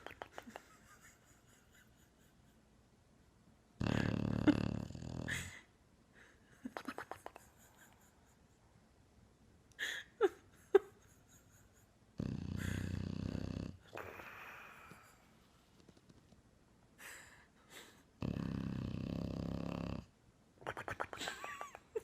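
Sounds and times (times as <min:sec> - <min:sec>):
dog snoring and snorting: 0:03.8 - 0:05.5, 0:12.2 - 0:14.6, 0:18.2 - 0:20.1.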